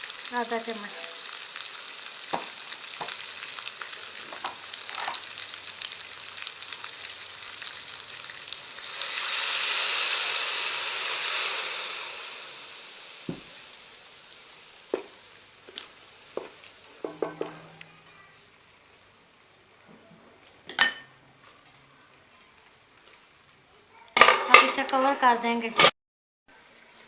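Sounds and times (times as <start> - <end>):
food sizzling in hot oil: 0.0 - 19.0, 26.5 - 27.0
spoon knocking on a pot: 17.0 - 17.7.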